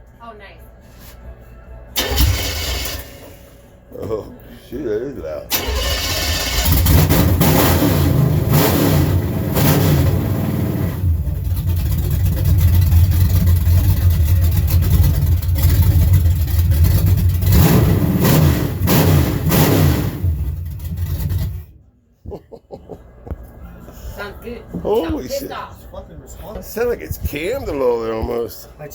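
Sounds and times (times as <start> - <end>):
truck engine revving: 2.0 - 3.4, 5.5 - 21.7.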